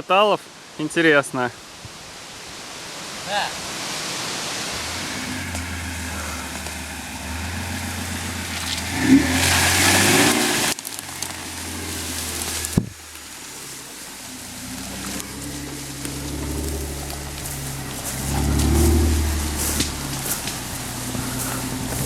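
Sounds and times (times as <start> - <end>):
suv engine running and revving: 4.4 - 22.0.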